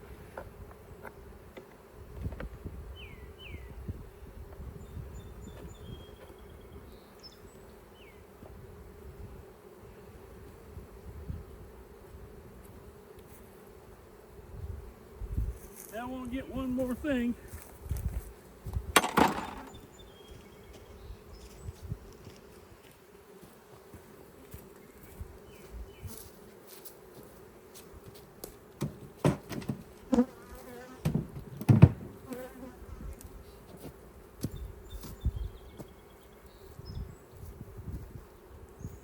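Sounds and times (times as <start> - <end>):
honeybees buzzing: 0.0 - 39.0
knocks and thumps: 18.9 - 19.7, 28.8 - 29.9, 31.0 - 32.2.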